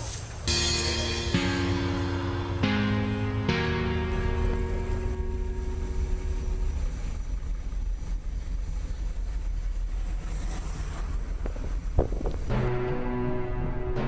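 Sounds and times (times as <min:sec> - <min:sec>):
low rumbling noise: 0:00.0 - 0:14.0
held music note: 0:00.5 - 0:07.3.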